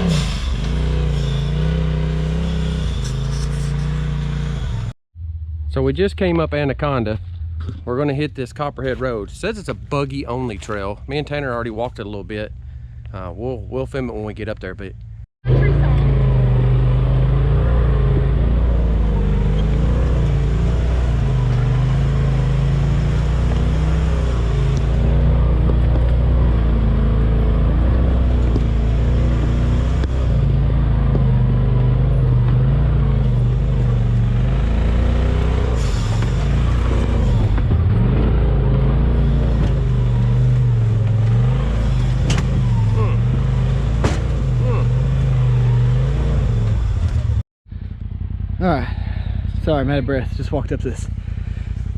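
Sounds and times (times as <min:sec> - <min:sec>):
utility vehicle engine revving: 0:00.0 - 0:47.4.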